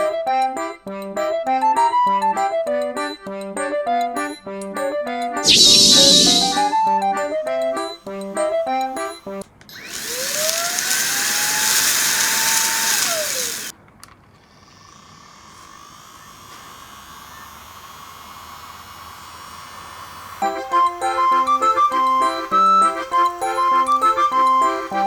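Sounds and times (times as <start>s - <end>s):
small vacuum cleaner motor whining: 5.4s - 6.8s, 9.7s - 13.7s, 14.4s - 25.0s.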